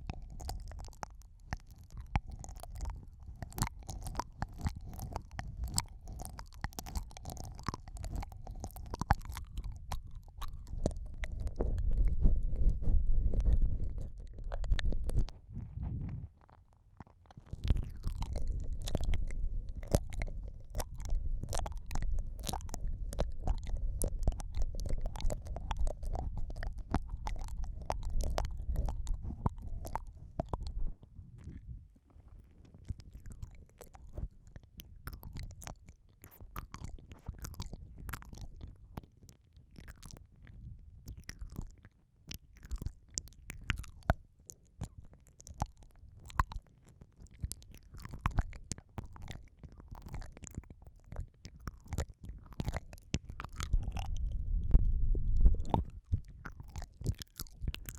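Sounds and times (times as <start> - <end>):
wet mouth clicks and smacks: 0.0 - 15.5, 16.4 - 31.7, 32.3 - 57.9
low muffled rumble: 9.3 - 16.4, 17.6 - 32.0, 53.5 - 56.4.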